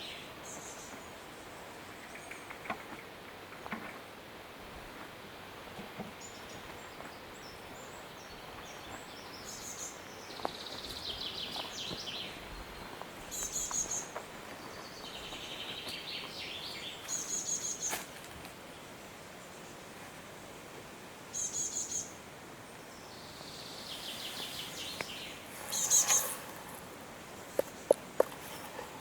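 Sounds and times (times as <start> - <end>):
songbird trills: 6.2 - 18.0, 21.3 - 28.9
high bird call notes: 24.0 - 26.7.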